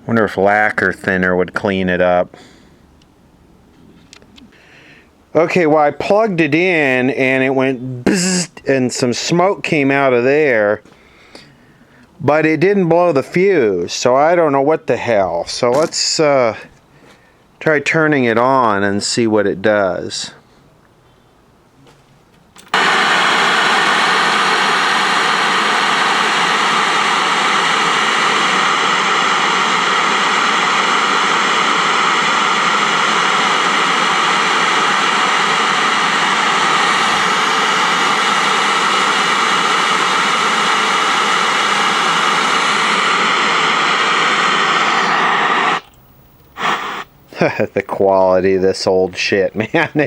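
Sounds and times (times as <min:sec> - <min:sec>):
tv static hiss: 0:22.7 - 0:50.0.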